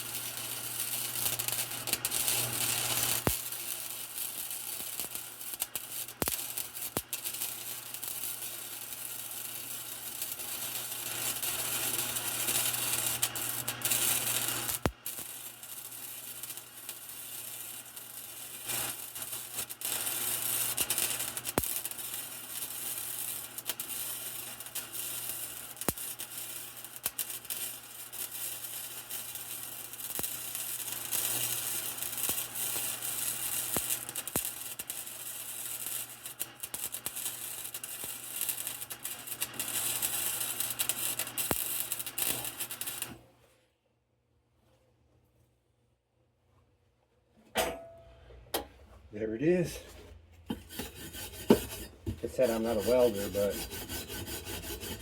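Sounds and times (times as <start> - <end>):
arc welding crackling sizzle: 0.0 - 43.2, 50.5 - 55.0
sharp welding pops: 0.0 - 43.2.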